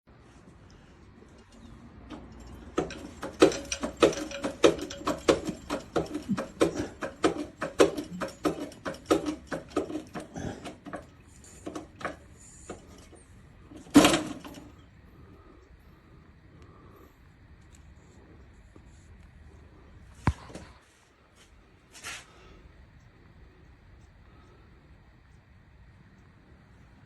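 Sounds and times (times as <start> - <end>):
mechanism clicking rhythmically: 1.3 - 14.8
loud clunk: 13.8 - 14.7.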